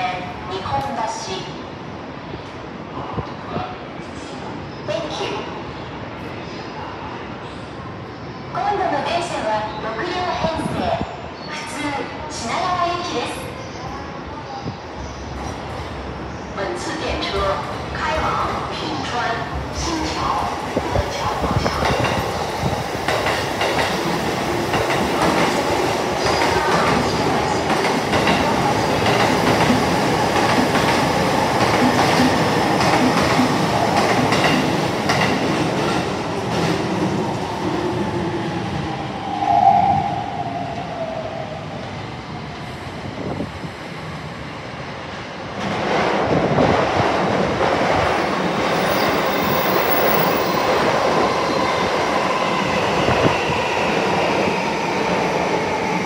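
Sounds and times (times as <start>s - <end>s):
train rumbling past: 13.8s - 56.0s.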